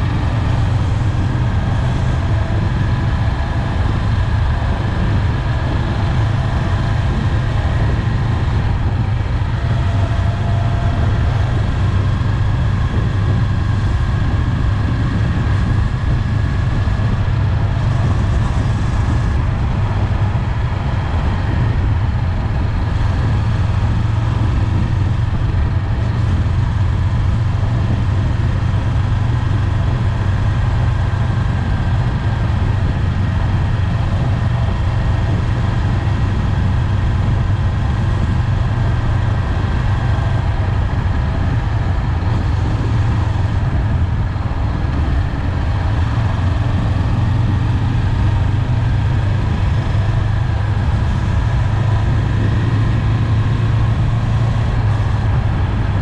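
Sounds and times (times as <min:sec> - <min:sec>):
motorcycle engine cruising: 0:00.0 - 0:56.0
wind and road noise: 0:00.0 - 0:56.0.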